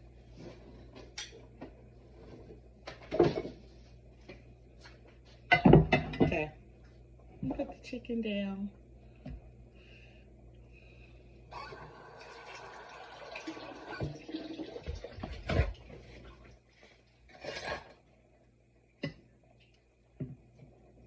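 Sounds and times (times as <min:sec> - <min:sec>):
liquid running and splashing: 0:12.1 - 0:15.8.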